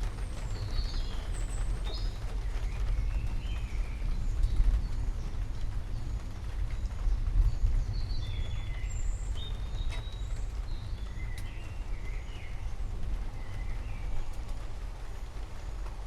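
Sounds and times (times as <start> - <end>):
steady deep rumble: 0.0 - 16.0
birds chirping and whistling: 0.5 - 14.4.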